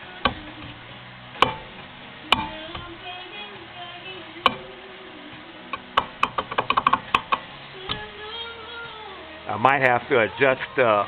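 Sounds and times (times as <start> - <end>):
brake drum metallic knocks: 1.4 - 3.0, 4.4 - 4.7, 5.7 - 8.1
brake drum clicking: 1.4 - 3.1, 4.4 - 4.7, 5.7 - 8.4.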